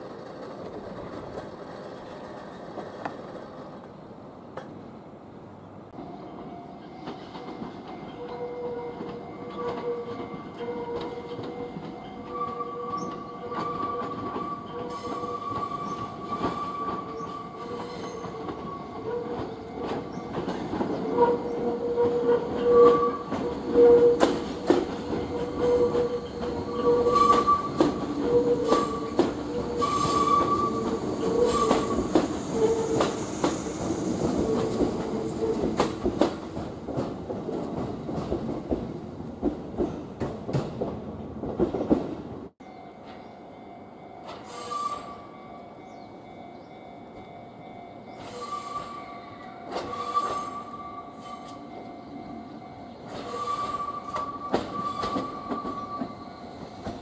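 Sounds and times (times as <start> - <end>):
wheels clacking over rail joints: 0.0 - 4.8, 6.8 - 42.2, 49.6 - 57.0
train wheels squealing: 6.1 - 36.4, 44.3 - 46.9, 48.0 - 57.0.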